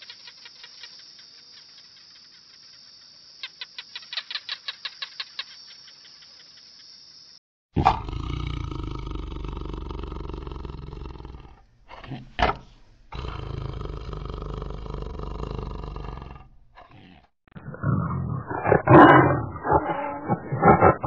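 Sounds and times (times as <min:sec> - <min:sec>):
tiger roaring: 0:07.8 - 0:21.0
tiger rumbling: 0:07.8 - 0:21.0.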